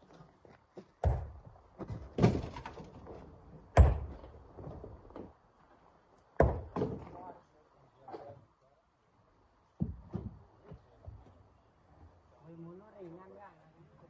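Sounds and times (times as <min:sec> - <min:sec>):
rocks thudding into truck bed: 0:01.0 - 0:05.0, 0:06.4 - 0:07.1.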